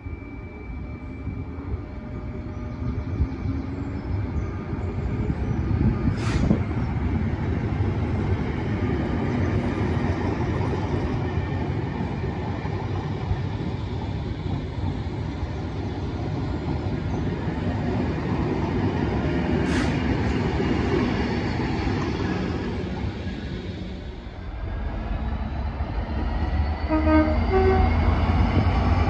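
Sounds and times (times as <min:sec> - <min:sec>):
train wheels rumbling on rail: 0:00.8 - 0:29.0.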